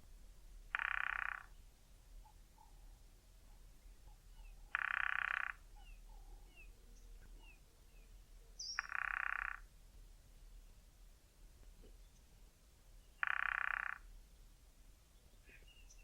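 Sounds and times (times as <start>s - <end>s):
woodpecker drumming on tree trunk: 0.7s - 1.5s, 4.7s - 5.6s, 8.8s - 9.7s, 13.2s - 14.1s
faint thin bird chirps: 8.6s - 9.6s, 15.4s - 16.0s.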